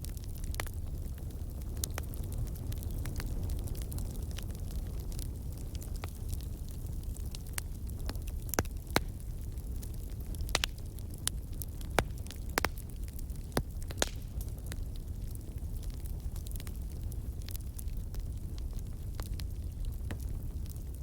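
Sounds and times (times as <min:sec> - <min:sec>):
log fire crackling: 0:00.0 - 0:21.0
low rumble of flames: 0:00.0 - 0:21.0.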